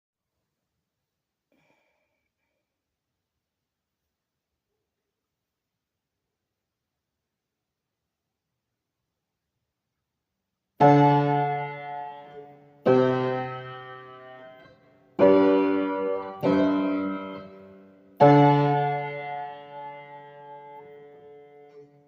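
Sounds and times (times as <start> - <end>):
keyboard chords ringing: 10.8 - 21.9.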